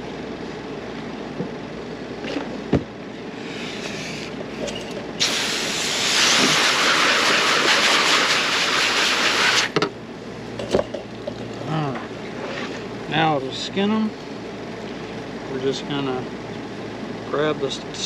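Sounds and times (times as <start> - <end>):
hose water spraying: 5.2 - 9.7.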